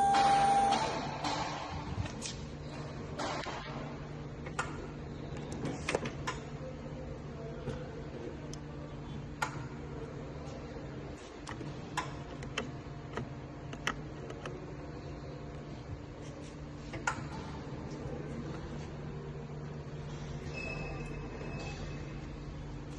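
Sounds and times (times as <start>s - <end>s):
electric pallet truck humming: 0.0s - 1.6s.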